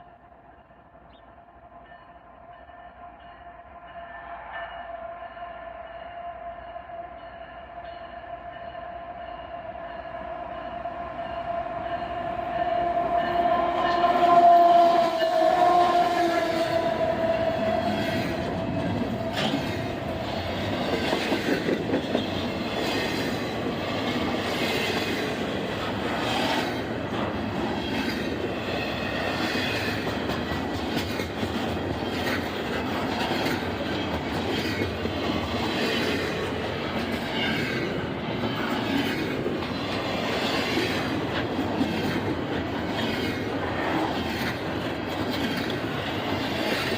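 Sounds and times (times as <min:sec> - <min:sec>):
train horn chord: 0:01.8 - 0:20.6
train wheels clicking over rail joints: 0:14.0 - 0:46.9.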